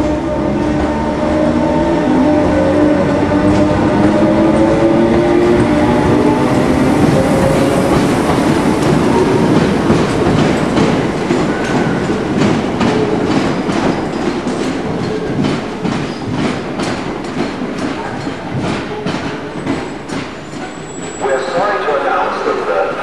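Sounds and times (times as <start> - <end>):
train coaches rumbling: 0.0 - 23.0
wheels clicking over rail joints: 3.4 - 21.2.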